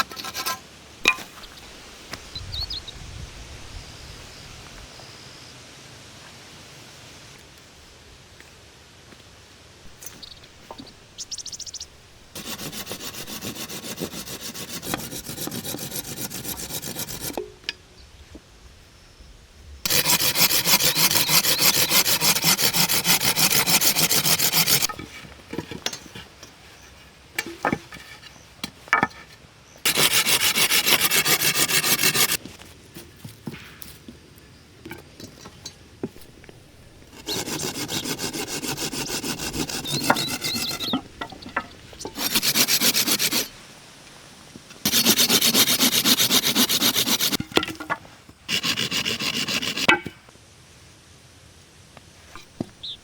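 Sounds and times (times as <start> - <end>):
tool scraping wood: 0.0 - 1.5, 12.3 - 17.5, 19.9 - 29.3, 29.9 - 33.6, 36.0 - 43.6, 44.8 - 50.2.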